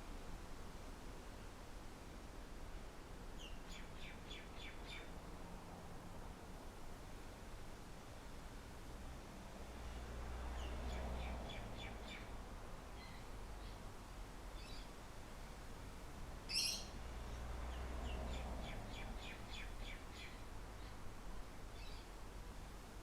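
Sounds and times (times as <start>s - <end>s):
songbird trilling: 16.5s - 16.9s.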